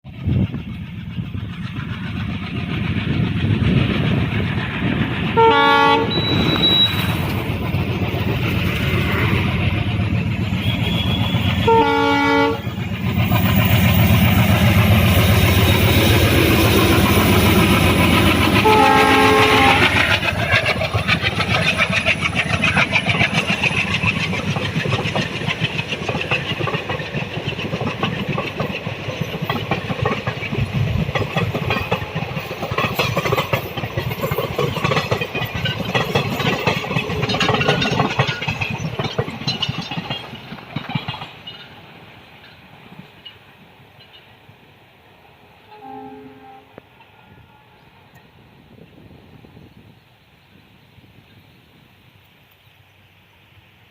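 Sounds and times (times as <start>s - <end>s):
train wheels clattering on rails: 0.0s - 44.6s
train rumble: 0.0s - 53.9s
train horn blasts: 5.4s - 7.2s, 10.6s - 12.8s, 18.6s - 20.0s, 45.6s - 48.0s.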